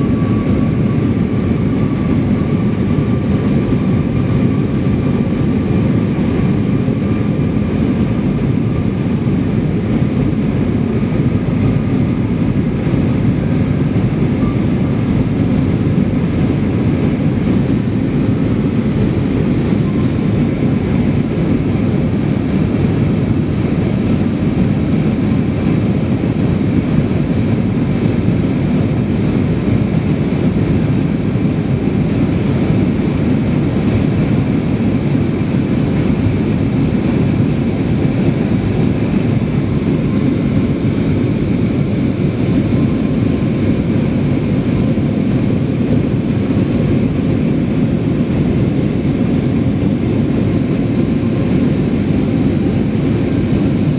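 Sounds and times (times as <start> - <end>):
jet engine drone in cabin: 0.0 - 53.9.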